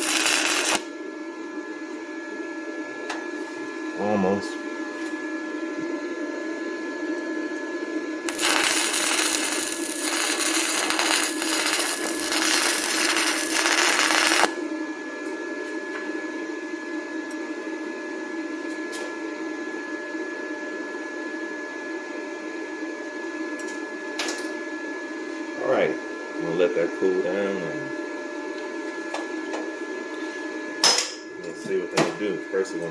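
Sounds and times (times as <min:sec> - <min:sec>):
welding arc crackling: 0:00.0 - 0:00.9, 0:08.3 - 0:14.6
steady hum: 0:00.0 - 0:01.7, 0:08.2 - 0:15.0.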